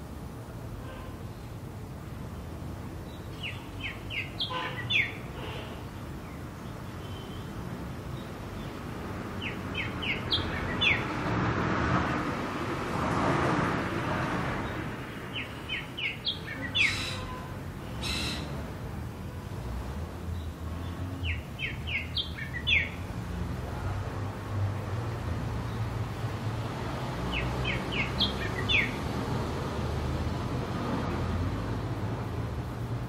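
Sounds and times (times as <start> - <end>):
distant traffic rumble: 0.0 - 33.0
bird chirping: 3.0 - 8.8, 9.4 - 11.2, 14.6 - 18.6, 20.3 - 23.0, 27.3 - 29.1.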